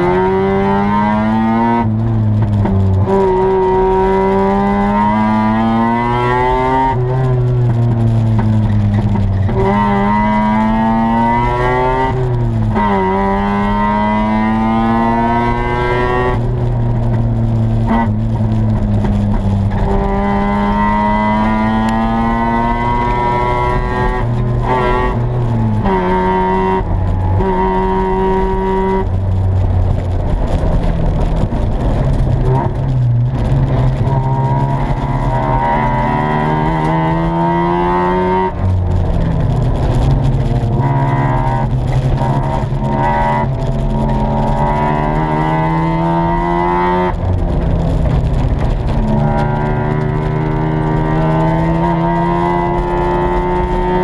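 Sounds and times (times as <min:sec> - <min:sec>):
rotary engine revving: 0:30.3 - 0:54.0.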